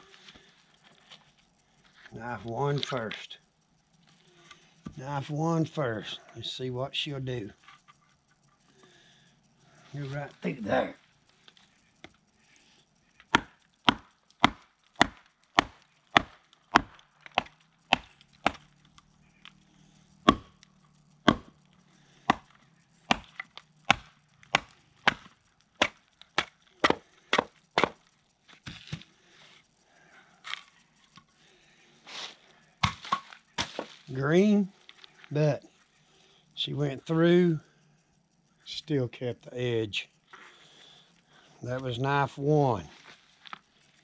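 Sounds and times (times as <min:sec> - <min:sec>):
knife beaten through wood: 0:23.9 - 0:28.0.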